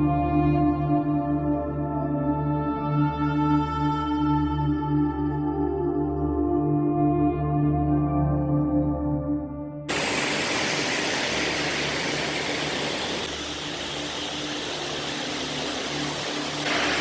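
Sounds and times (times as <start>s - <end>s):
ambient music with ringing tones: 0.0s - 10.0s.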